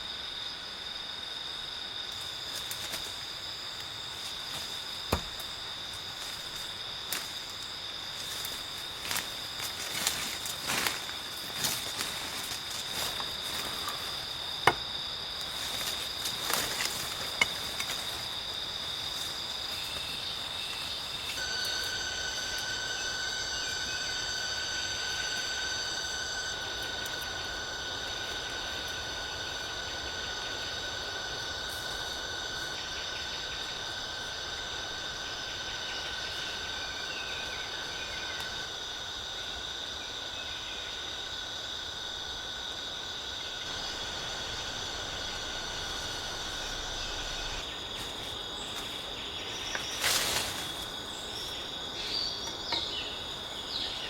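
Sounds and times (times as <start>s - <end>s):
insects trilling: 0.0s - 54.0s.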